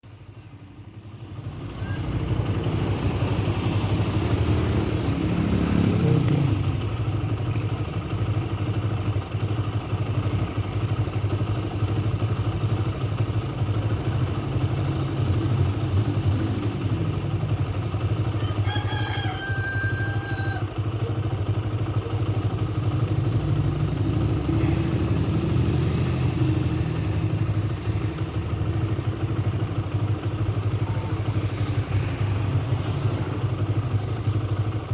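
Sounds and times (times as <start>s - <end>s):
low engine drone: 0.0s - 8.8s, 9.9s - 18.5s, 22.1s - 34.9s
rooster crowing: 18.1s - 20.8s.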